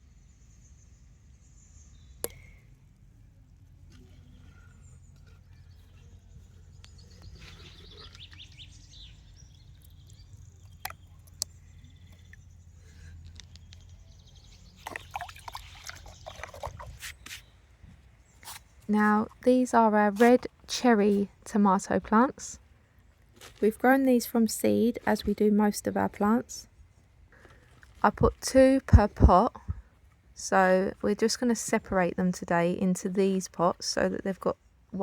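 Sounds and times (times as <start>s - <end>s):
low steady rumble: 0.0s - 17.0s
birds chirping: 4.0s - 23.2s.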